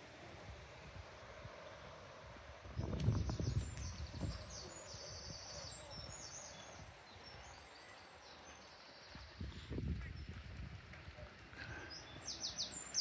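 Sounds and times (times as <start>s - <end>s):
outdoor hiss: 0.0s - 13.0s
small birds chirping: 2.6s - 13.0s.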